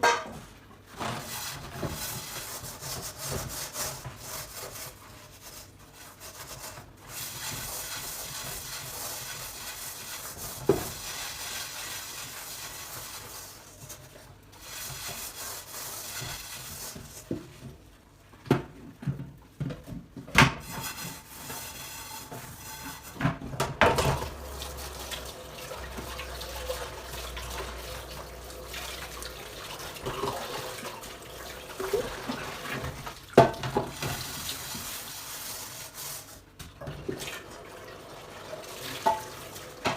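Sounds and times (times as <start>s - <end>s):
tap water running into sink: 23.8s - 34.7s, 36.8s - 39.9s.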